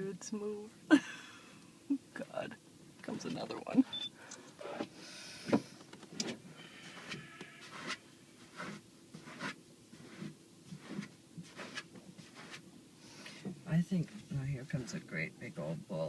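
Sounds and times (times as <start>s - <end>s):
faint steady hum: 0.0s - 16.0s
rubbing scrapes and knocks: 7.0s - 12.6s.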